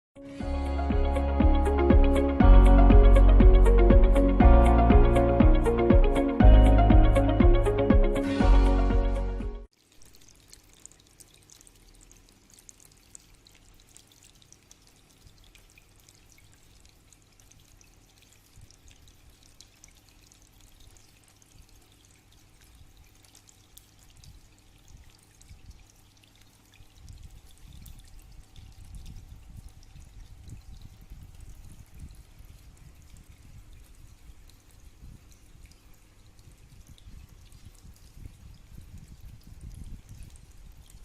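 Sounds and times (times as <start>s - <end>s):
water trickling and dripping: 9.6s - 41.0s
small drip ticks: 9.7s - 41.0s.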